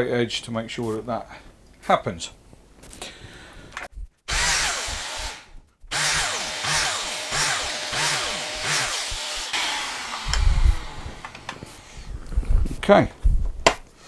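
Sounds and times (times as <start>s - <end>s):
plunge saw cutting wood: 4.3s - 12.0s.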